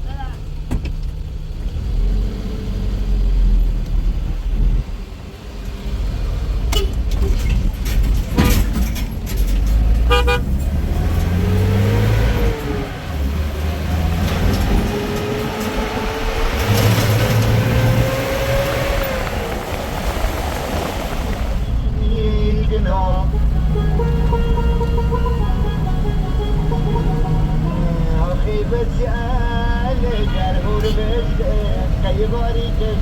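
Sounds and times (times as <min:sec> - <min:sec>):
vehicle engine running: 0:09.3 - 0:33.0
short horn toot: 0:10.0 - 0:10.6.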